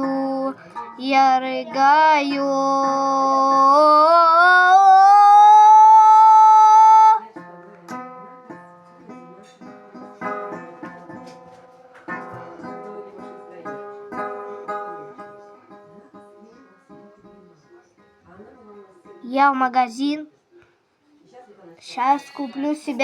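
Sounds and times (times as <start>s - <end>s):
guitar plucked: 0.0s - 18.1s
held vocal note: 1.6s - 7.3s.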